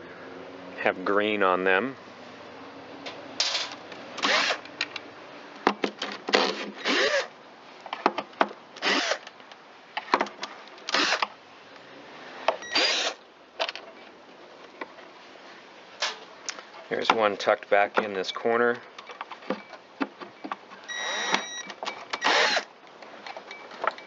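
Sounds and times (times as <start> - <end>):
cordless drill running: 4.2 - 4.6, 8.8 - 9.2, 10.9 - 11.2, 12.7 - 13.2, 22.2 - 22.7.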